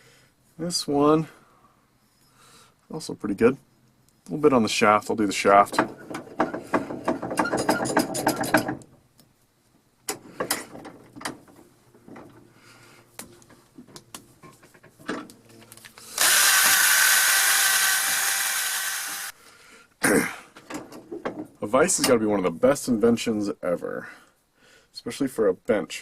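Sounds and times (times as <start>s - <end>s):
drill driving polishing wheel: 16.1s - 19.4s.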